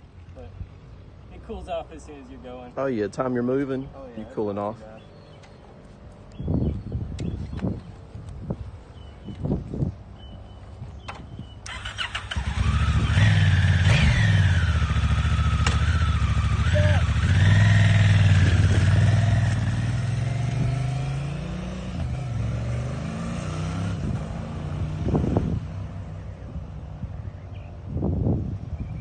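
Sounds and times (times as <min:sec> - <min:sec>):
motorcycle engine revving: 0:11.6 - 0:26.0.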